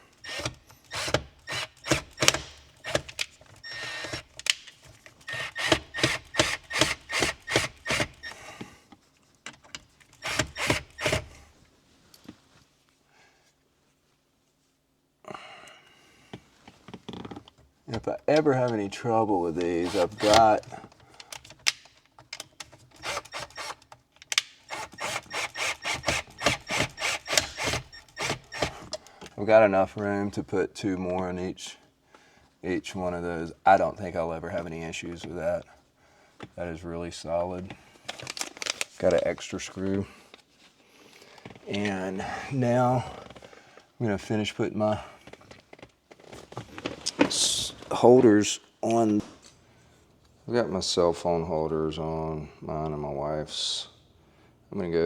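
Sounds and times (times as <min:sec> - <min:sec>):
hand tools clicking and knocking: 0:00.3 - 0:08.4, 0:19.6 - 0:29.0.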